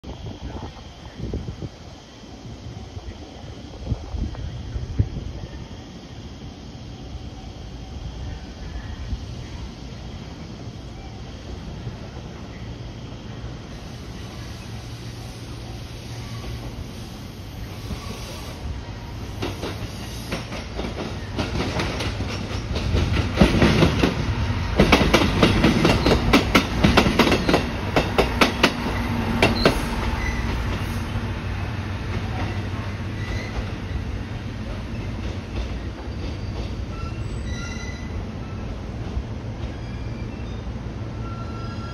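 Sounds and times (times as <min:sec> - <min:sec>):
diesel railcar rumble: 0:00.0 - 0:41.9
train wheels clattering over rail joints: 0:19.3 - 0:30.9.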